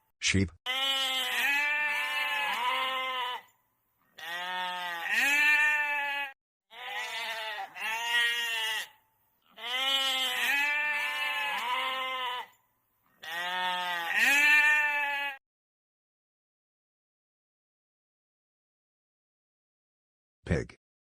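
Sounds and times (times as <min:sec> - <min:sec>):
sheep bleating: 0:00.6 - 0:15.4.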